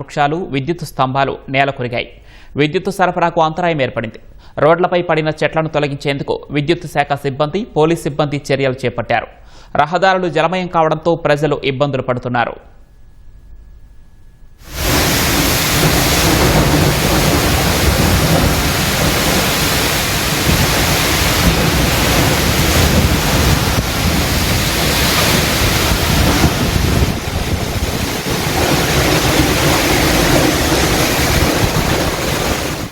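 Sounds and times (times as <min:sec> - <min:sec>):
gusts buffeting microphone: 0:14.6 - 0:32.9
heavy wind and rain: 0:14.6 - 0:32.9.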